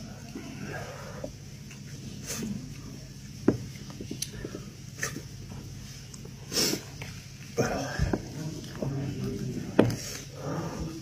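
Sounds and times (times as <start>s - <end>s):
man chewing and lip smacking: 1.5s - 3.0s, 3.7s - 7.5s.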